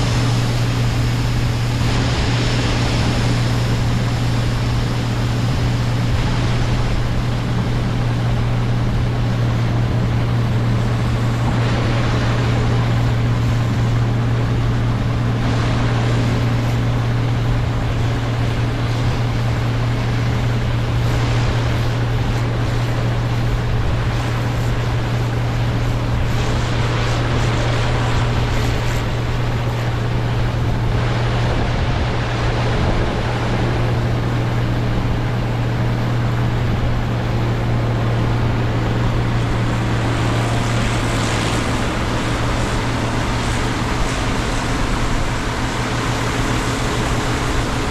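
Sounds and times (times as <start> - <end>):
diesel farm machinery running: 0.0 - 47.9
rushing noise: 0.0 - 47.9.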